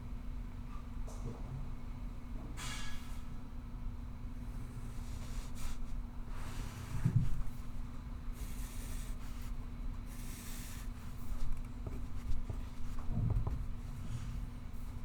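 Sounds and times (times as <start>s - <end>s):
low room hum: 0.0s - 15.0s
pencil scratching on paper: 8.4s - 12.9s.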